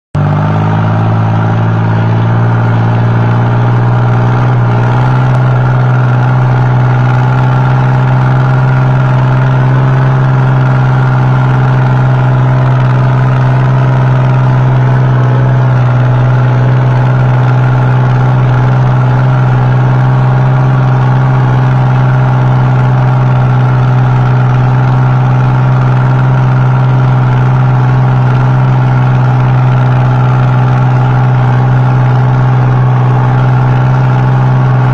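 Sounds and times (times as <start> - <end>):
tractor diesel engine running: 0.2 - 34.9.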